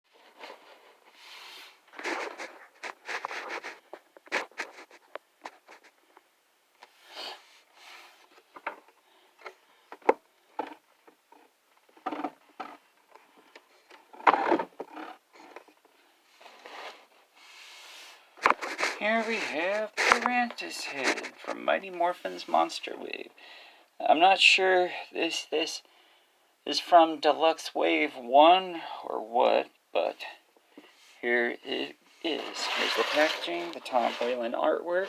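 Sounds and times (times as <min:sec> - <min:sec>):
packaging rustling and scraping: 0:01.9 - 0:06.0, 0:16.4 - 0:17.1, 0:18.4 - 0:21.7.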